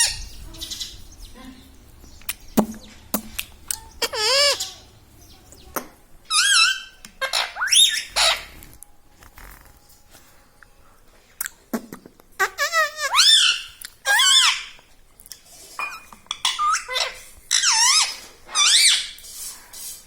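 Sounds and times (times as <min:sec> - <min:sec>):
parrot squawking: 0:03.7 - 0:04.9, 0:06.3 - 0:08.6, 0:12.4 - 0:14.8, 0:16.3 - 0:19.2.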